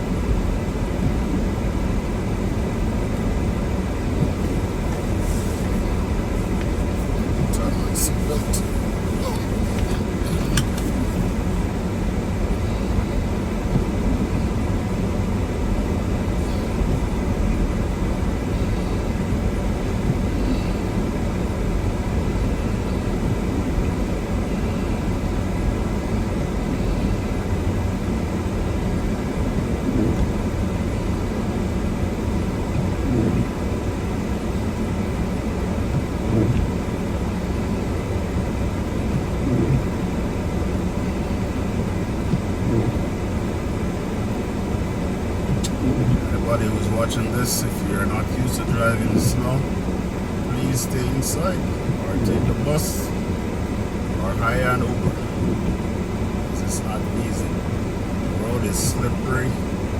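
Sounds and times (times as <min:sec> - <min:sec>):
car engine: 0:00.0 - 0:59.9
tyres on snow: 0:00.0 - 0:59.9.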